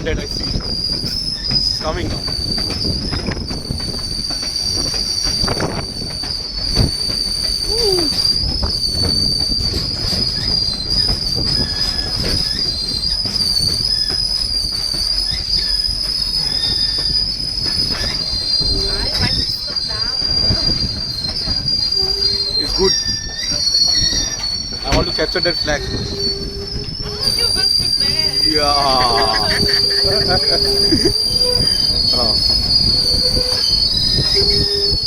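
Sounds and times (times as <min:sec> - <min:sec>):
rumble of rolling train cars: 0:00.0 - 0:35.0
train wheels squealing on rails: 0:00.0 - 0:35.0.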